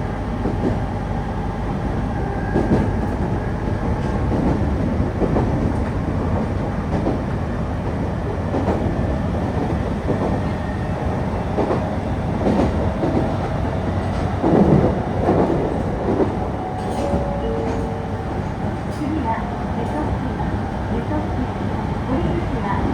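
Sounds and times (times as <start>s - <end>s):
train wheels rumbling on rail: 0.0s - 22.9s
clacks over rail joints: 11.5s - 19.2s.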